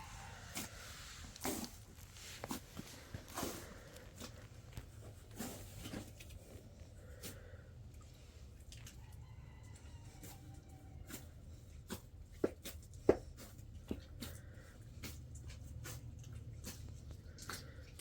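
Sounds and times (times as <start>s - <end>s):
distant rooster crowing: 0.0s - 1.1s, 9.0s - 11.3s.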